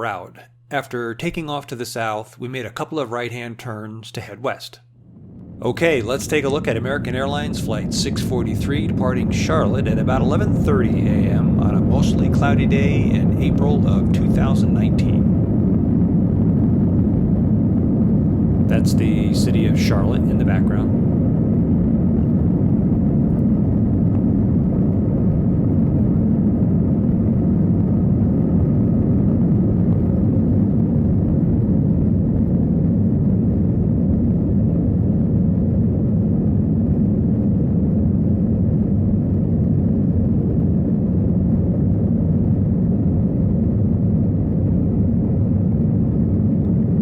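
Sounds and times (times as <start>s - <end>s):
air rushing past fuselage: 5.0s - 34.8s
jet engines at take-off thrust: 5.0s - 47.0s.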